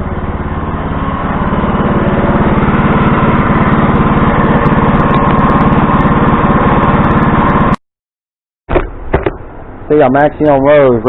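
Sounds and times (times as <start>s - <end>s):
small tractor engine running: 0.0s - 7.8s.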